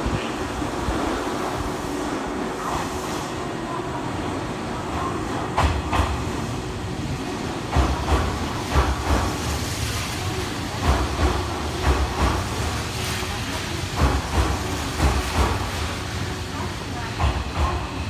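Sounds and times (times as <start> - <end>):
train running noise: 0.0 - 18.0
train wheels thudding over rail joints: 5.5 - 6.4, 7.5 - 10.1, 10.7 - 12.8, 13.8 - 16.0, 17.1 - 18.0.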